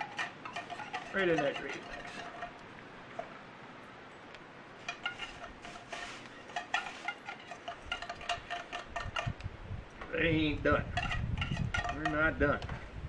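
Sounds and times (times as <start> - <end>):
spoon clinking against metal cup: 0.0 - 2.6
steady low hiss: 0.0 - 13.0.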